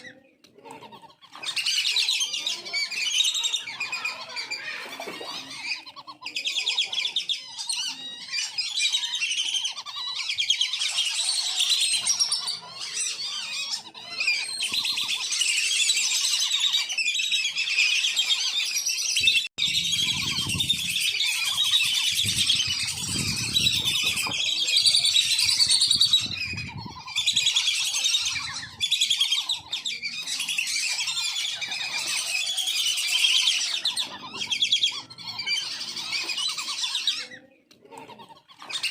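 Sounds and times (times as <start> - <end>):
whistling ducks calling: 0.8 - 38.9.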